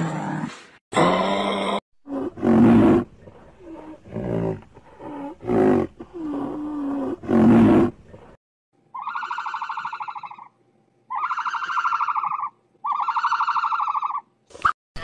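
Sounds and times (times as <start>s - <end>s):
high-pitched pulsed animal calls: 8.9s - 10.5s, 11.1s - 14.2s
loud wavering animal call: 8.9s - 10.5s, 11.1s - 14.2s.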